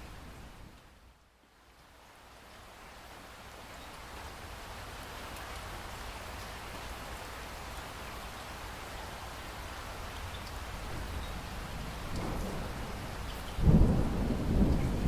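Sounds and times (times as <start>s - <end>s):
rain falling: 0.0s - 15.0s
low rumble of thunder: 10.6s - 15.0s.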